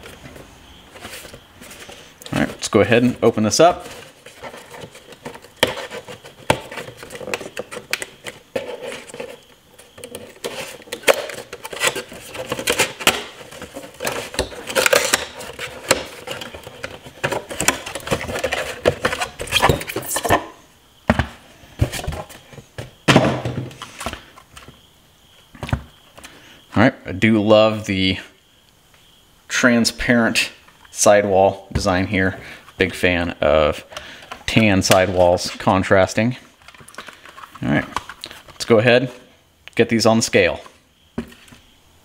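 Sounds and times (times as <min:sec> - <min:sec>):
cardboard packaging rustling: 0:00.0 - 0:24.8.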